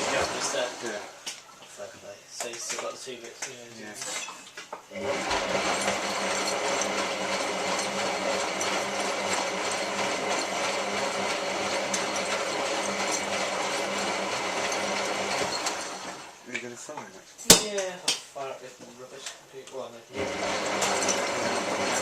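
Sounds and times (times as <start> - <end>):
washing machine running: 0.0 - 1.3, 4.9 - 16.4, 20.1 - 22.0.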